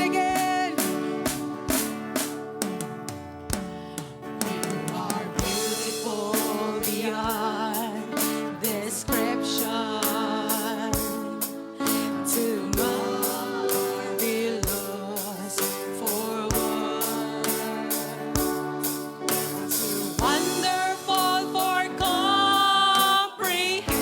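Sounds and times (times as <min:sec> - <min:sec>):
voices singing with vibrato: 0:00.0 - 0:02.3, 0:04.6 - 0:24.0
drums steady beat: 0:00.0 - 0:24.0
gospel band playing: 0:00.0 - 0:24.0.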